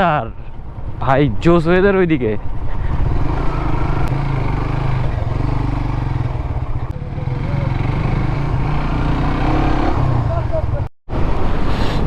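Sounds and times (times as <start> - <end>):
motorcycle engine running: 2.6 - 10.8.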